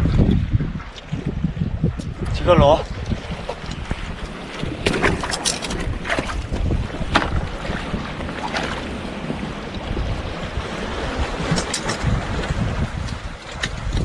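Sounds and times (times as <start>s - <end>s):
sea waves washing: 0.0s - 14.0s
strong wind buffeting microphone: 0.0s - 14.0s.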